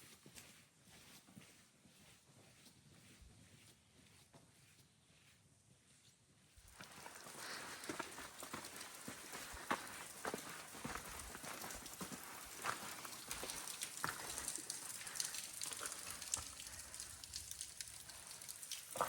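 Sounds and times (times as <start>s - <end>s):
footsteps crunching on trail: 6.6s - 17.0s.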